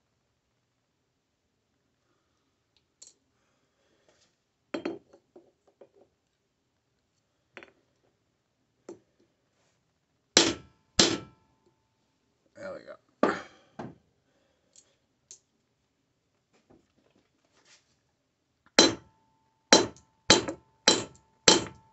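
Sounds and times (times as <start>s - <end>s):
hammer striking metal on an anvil: 10.4s - 11.4s, 18.8s - 19.1s, 19.7s - 21.9s.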